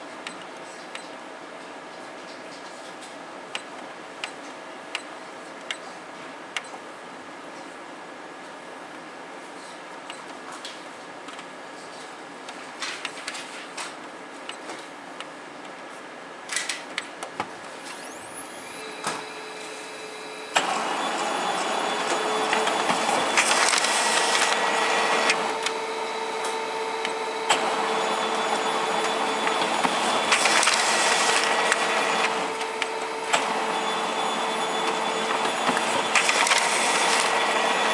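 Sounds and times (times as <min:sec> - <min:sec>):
machine whining: 0:17.7 - 0:37.9
noisy machine surge: 0:17.8 - 0:37.9.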